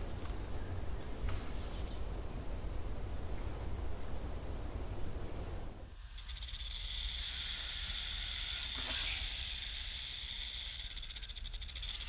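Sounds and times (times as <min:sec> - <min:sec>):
insect chorus buzzing: 0:05.8 - 0:12.0.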